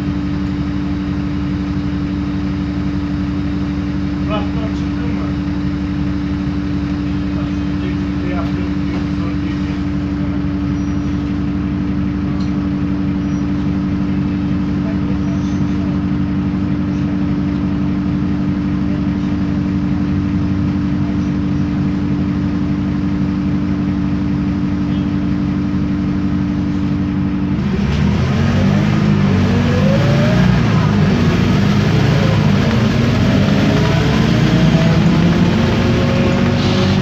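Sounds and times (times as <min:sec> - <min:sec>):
bus diesel engine accelerating: 0:00.0 - 0:37.0
gearbox whine: 0:27.6 - 0:37.0.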